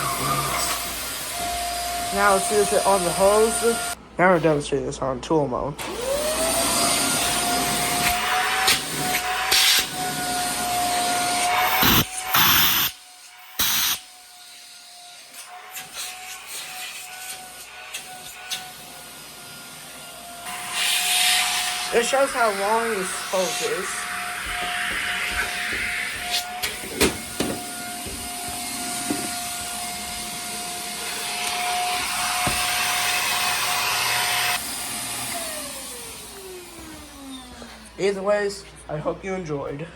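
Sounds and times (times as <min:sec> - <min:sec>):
vacuum motor whine: 0:00.0 - 0:04.0, 0:05.8 - 0:14.1, 0:15.4 - 0:37.9
vacuum hose airflow rushing: 0:20.5 - 0:38.0.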